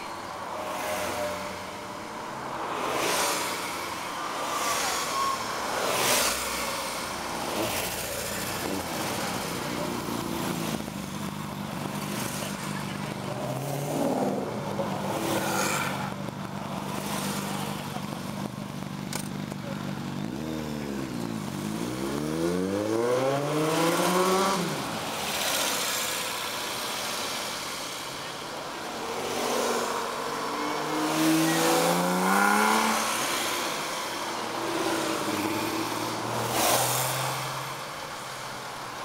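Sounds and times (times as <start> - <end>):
sports cars accelerating: 0.4 - 16.2, 20.2 - 27.6, 28.5 - 38.5.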